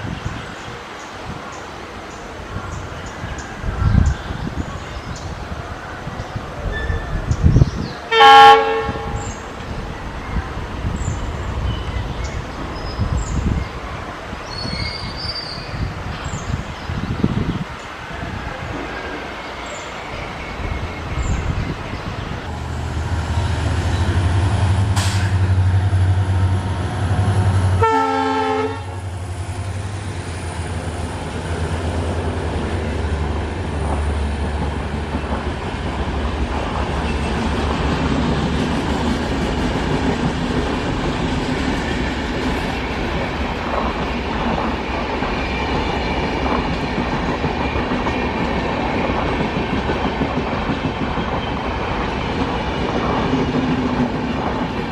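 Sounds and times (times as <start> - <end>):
train horn blast: 8.1 - 9.5, 24.4 - 29.1
locomotive engine drone: 18.1 - 48.1
train wheels clattering on rails: 18.5 - 28.0, 29.1 - 54.9.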